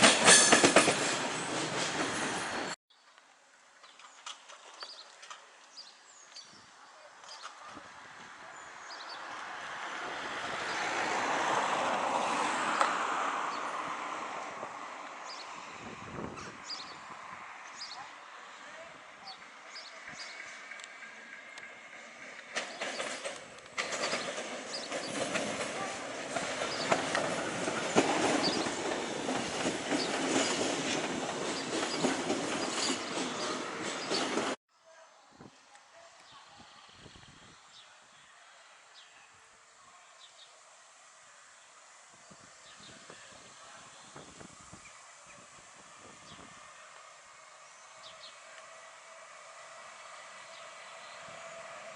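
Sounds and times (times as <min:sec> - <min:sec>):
train wheels clacking on rails: 0:00.0 - 0:02.8, 0:22.3 - 0:34.6
train passing rumble: 0:07.9 - 0:34.6, 0:40.5 - 0:51.9.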